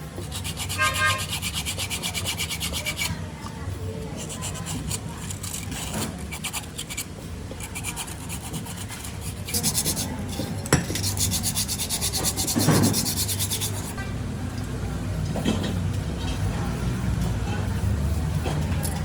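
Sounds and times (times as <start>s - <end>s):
metal being rubbed down: 0.2s - 3.1s, 7.6s - 10.2s, 11.0s - 14.0s.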